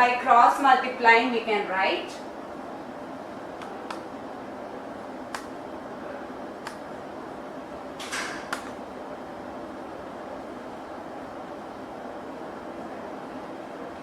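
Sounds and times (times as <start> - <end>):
faint sharp clicks: 5.3 - 5.5.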